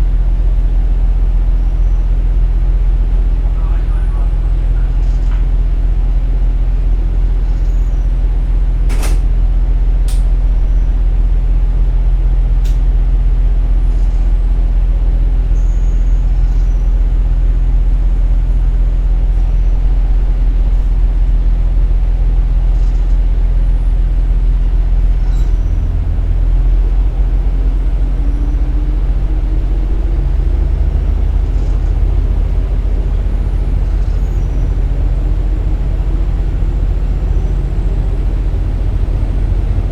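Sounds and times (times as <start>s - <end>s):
diesel engine droning: 0.0s - 39.9s
wheels on rails: 24.6s - 39.9s.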